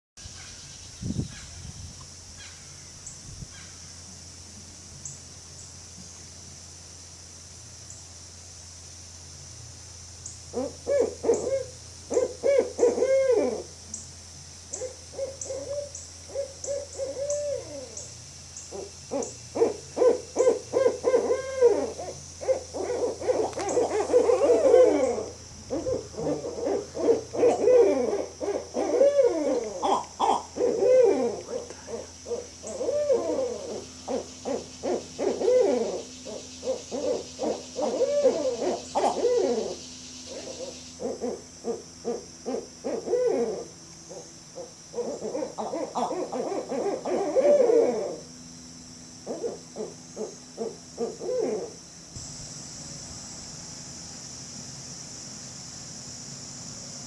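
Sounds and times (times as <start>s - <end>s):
owls hooting: 10.5s - 13.7s, 14.7s - 48.3s, 49.2s - 51.8s.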